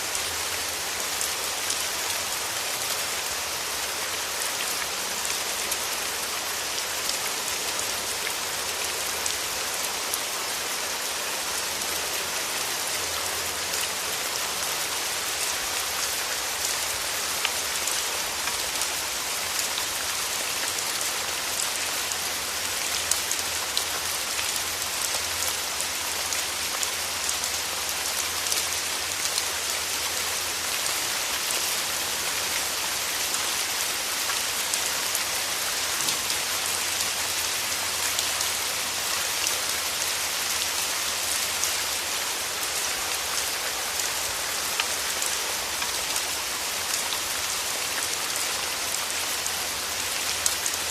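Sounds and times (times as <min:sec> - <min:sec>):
steady rainfall: 0:00.0 - 0:50.9
raindrops ticking on a surface: 0:15.4 - 0:40.4.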